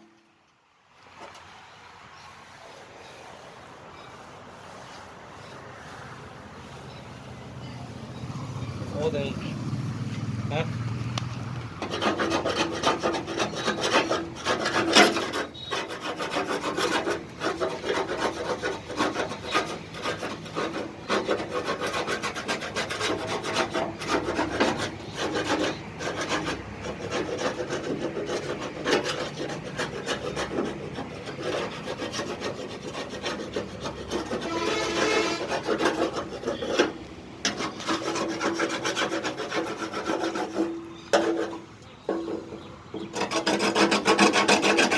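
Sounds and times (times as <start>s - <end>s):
abrasive rasping on metal: 11.8s - 44.9s.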